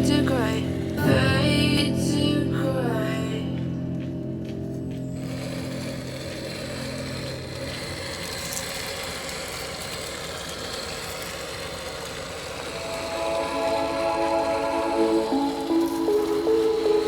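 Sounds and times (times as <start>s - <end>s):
background music: 0.0s - 8.0s, 12.7s - 17.0s
electric motor whine: 4.7s - 17.0s.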